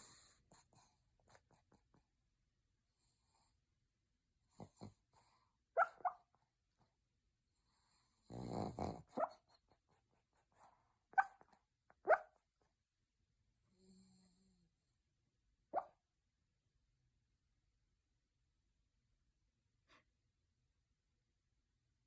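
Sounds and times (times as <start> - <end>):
dog snoring: 4.5 - 5.4, 7.7 - 9.3.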